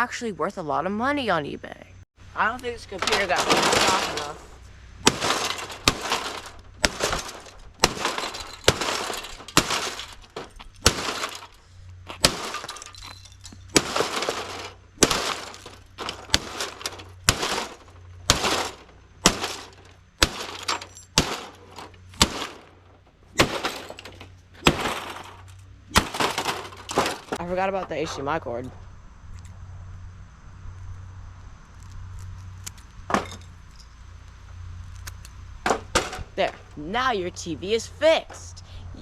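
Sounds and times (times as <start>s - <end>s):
debris clattering: 2.4s - 28.8s, 33.0s - 34.0s, 35.6s - 38.6s
tv screen being smashed: 2.8s - 22.8s, 23.4s - 27.4s.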